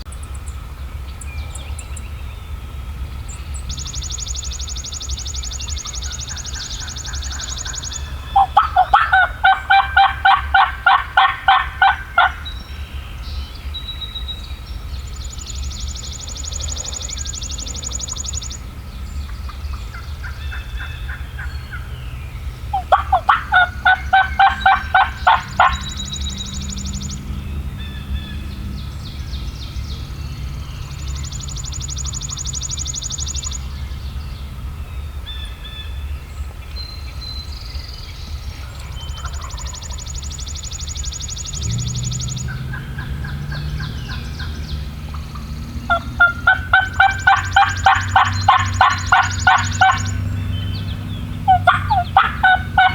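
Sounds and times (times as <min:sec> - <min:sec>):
songbird trilling: 0:00.0 - 0:52.9
turkey yelping: 0:05.8 - 0:12.6, 0:22.7 - 0:26.2, 0:39.2 - 0:40.0, 0:42.5 - 0:50.3, 0:51.4 - 0:52.9
low rumble: 0:18.6 - 0:52.9.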